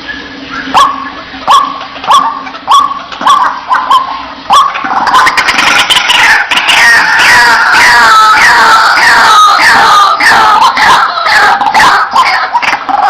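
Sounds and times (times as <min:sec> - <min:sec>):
waterhen calling: 0:00.0 - 0:13.0.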